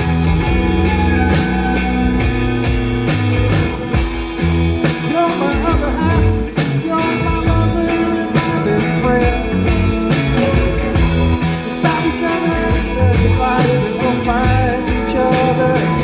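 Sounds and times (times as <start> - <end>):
bass guitar: 0.0 - 16.0
drum kit beat: 0.0 - 16.0
electric guitar: 0.0 - 16.0.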